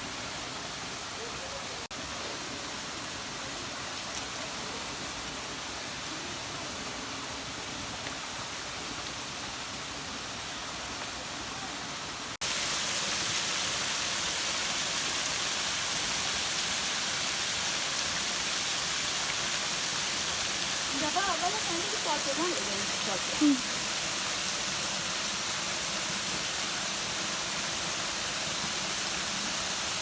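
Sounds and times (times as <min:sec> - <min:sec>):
waterfall rushing: 0:12.4 - 0:30.0.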